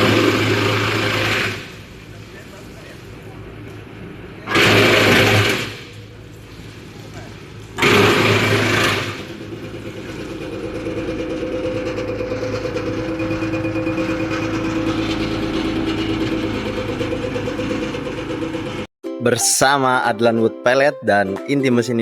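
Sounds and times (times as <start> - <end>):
loud rushing burst: 0.0 - 2.2, 4.5 - 6.1, 7.8 - 18.9
wood chipper droning hum: 0.0 - 18.9.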